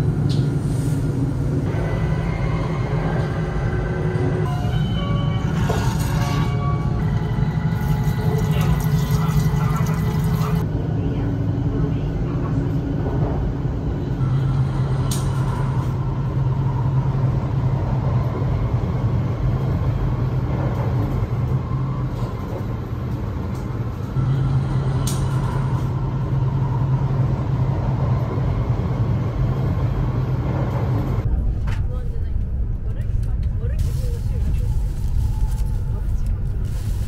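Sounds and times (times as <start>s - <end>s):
train rumble and hiss: 0.0s - 37.0s.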